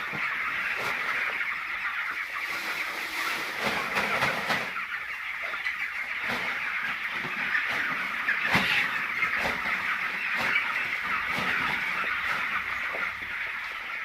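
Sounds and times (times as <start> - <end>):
chickens clucking and peeping: 0.0 - 14.0.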